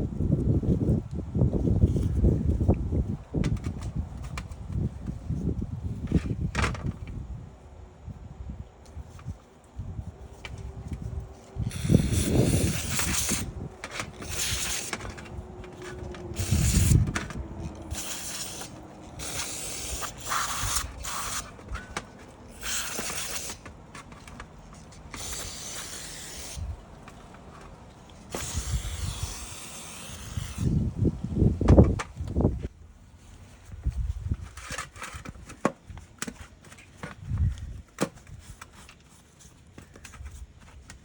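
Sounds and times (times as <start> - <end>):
hissing spray bursts: 11.7 - 13.5, 14.2 - 15.1, 16.4 - 17.0, 17.9 - 21.6, 22.5 - 23.6, 25.1 - 26.7, 28.3 - 30.8.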